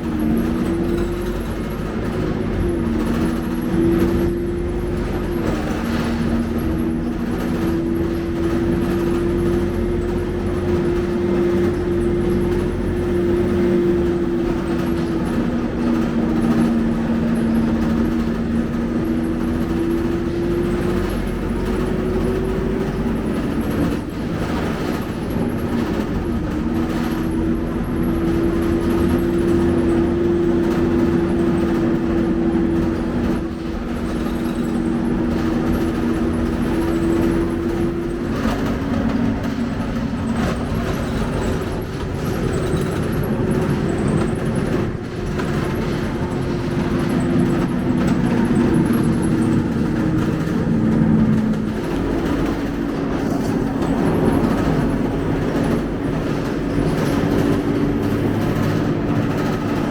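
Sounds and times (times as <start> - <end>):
bus drivetrain whine: 0.0 - 59.9.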